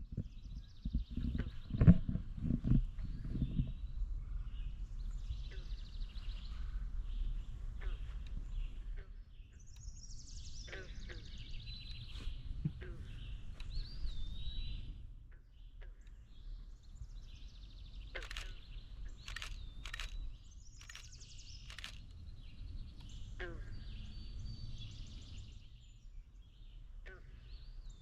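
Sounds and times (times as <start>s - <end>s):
buzzy trilling bird songs: 15.7s - 26.8s
bird chip calls: 17.7s - 22.2s.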